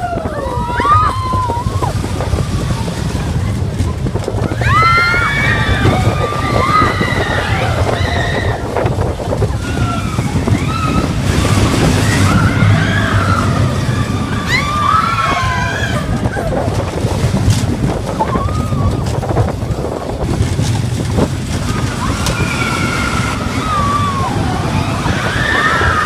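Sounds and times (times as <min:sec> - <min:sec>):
roller coaster rumbling on track: 0:00.0 - 0:26.0
people calling out: 0:04.5 - 0:17.0, 0:21.5 - 0:26.0.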